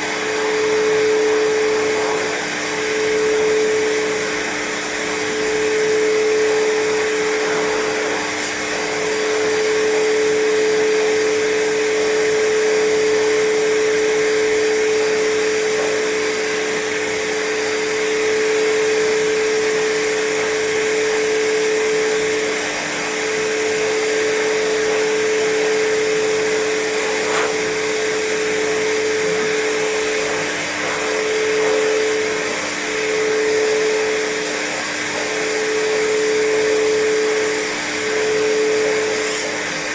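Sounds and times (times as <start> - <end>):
blow dryer whining and blowing: 0.0 - 39.9.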